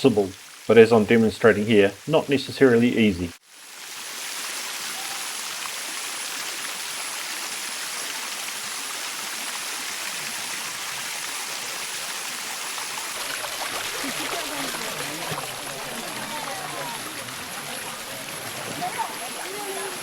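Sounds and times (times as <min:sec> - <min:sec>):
waterfall rushing: 0:10.8 - 0:20.0.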